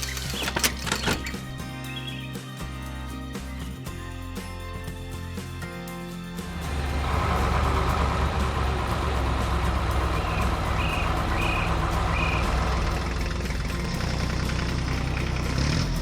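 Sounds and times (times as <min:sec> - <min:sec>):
heavy vehicle engine humming: 0:06.4 - 0:16.0.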